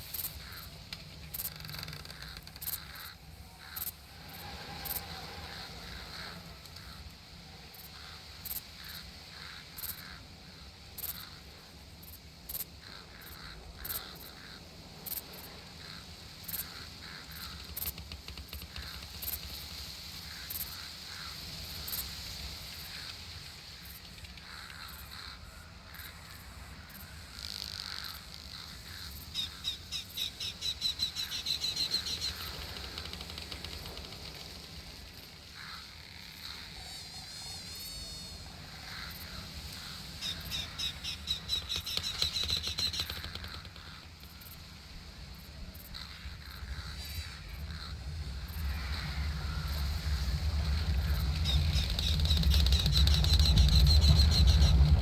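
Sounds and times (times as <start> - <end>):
insect hum: 0.0 - 55.0
birds calling: 27.5 - 55.0
rapid trill of chirps: 36.3 - 44.0, 46.5 - 55.0
short scattered clicks: 41.3 - 44.1.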